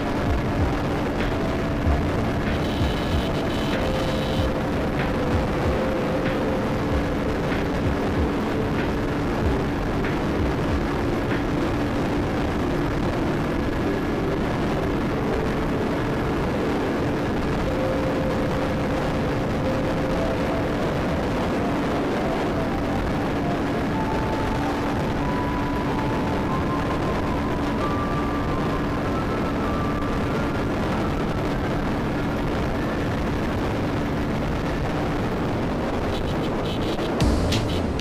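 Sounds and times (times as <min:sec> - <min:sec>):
wind and road noise: 0:00.0 - 0:38.0.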